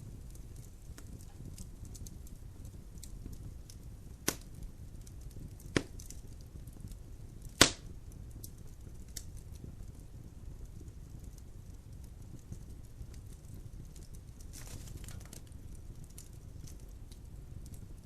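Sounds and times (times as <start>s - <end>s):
logs crackling in a fireplace: 0.0s - 18.0s
low steady fire rumble: 0.0s - 18.0s
loud sharp pops: 4.2s - 4.5s, 5.7s - 6.1s, 7.6s - 7.9s.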